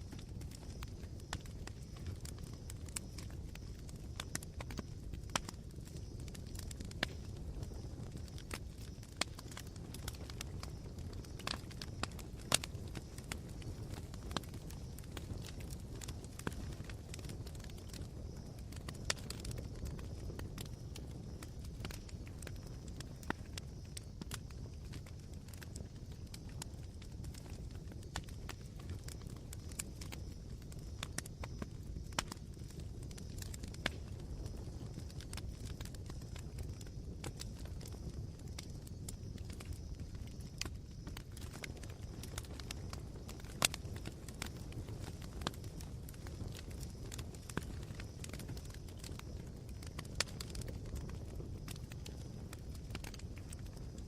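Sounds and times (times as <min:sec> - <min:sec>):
campfire embers crackling: 0:00.0 - 0:54.0.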